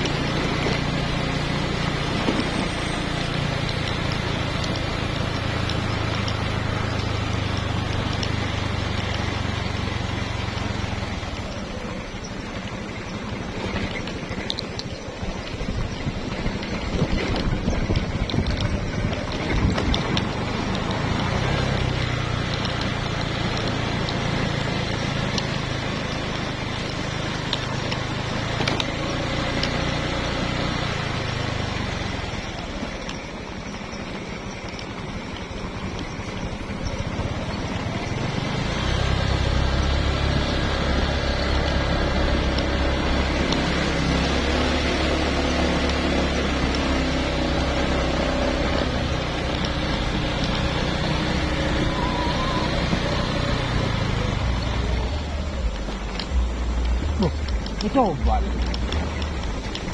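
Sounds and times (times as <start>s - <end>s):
engine running: 0.0s - 59.9s.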